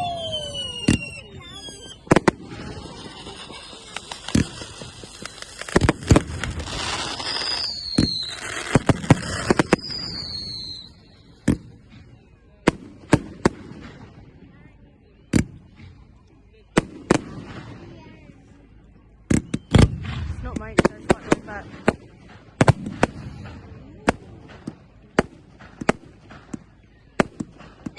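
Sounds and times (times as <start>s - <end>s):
falling firework whistles: 0.0s - 12.3s, 19.3s - 20.3s
firework bangs: 0.0s - 14.4s, 15.3s - 16.1s, 16.7s - 18.5s, 19.2s - 27.9s
firework crackling: 0.0s - 14.4s, 19.3s - 27.9s.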